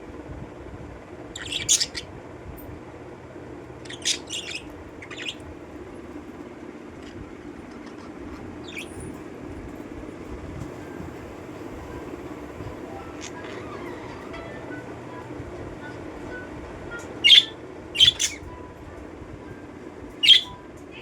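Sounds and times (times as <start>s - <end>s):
steady low hum: 0.0s - 21.0s
parrots chirping: 1.4s - 2.1s, 3.8s - 5.6s, 7.0s - 9.2s, 12.6s - 14.9s, 17.0s - 18.6s, 20.2s - 20.6s.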